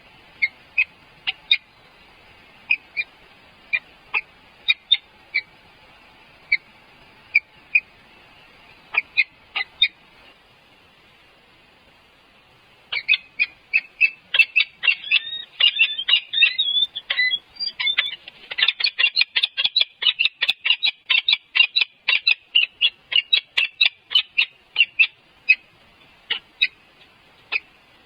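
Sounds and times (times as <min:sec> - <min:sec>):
birds chirping rapidly: 0:12.9 - 0:25.6.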